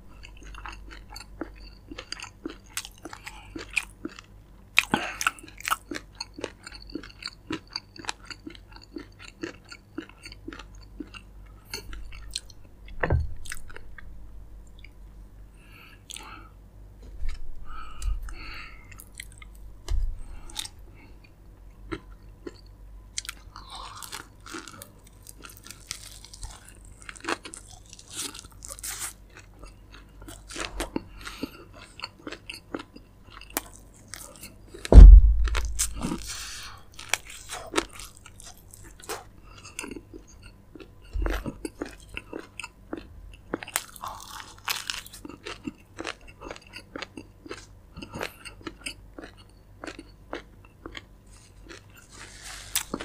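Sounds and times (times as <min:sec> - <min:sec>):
chewing fried chicken: 0:00.1 - 0:15.0, 0:15.6 - 0:16.5, 0:17.3 - 0:19.6, 0:20.2 - 0:34.9, 0:35.9 - 0:53.0
loud low thump: 0:34.9 - 0:36.4.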